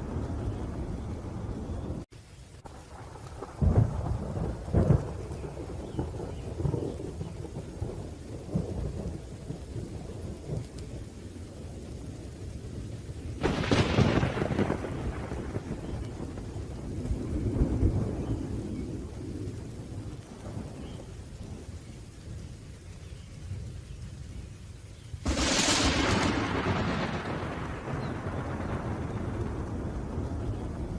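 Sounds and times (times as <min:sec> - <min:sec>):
rolling thunder: 0:00.0 - 0:22.6, 0:25.2 - 0:30.9
steady rain: 0:00.0 - 0:30.9
sharp thunderclap: 0:02.9 - 0:09.2, 0:13.4 - 0:21.6, 0:25.2 - 0:30.9.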